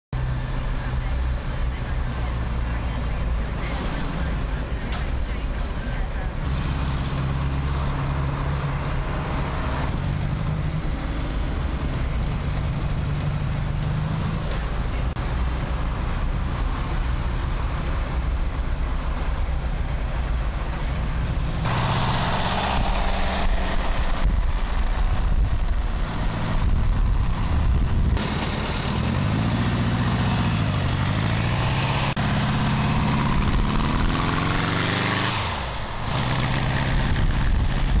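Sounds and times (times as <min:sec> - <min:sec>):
trike engine revving: 0:06.4 - 0:15.2, 0:20.2 - 0:38.0.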